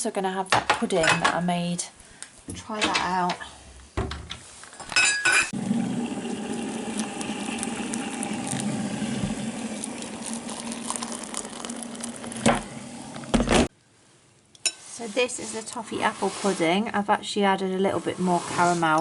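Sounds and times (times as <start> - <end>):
crockery clinking: 4.8 - 5.5.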